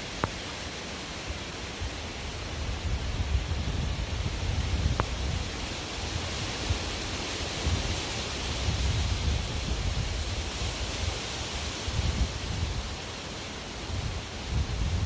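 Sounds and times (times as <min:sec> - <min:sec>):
wind buffeting microphone: 0:01.8 - 0:13.0, 0:13.8 - 0:15.0
strong wind rushing: 0:02.5 - 0:07.0, 0:07.6 - 0:11.2, 0:13.8 - 0:15.0.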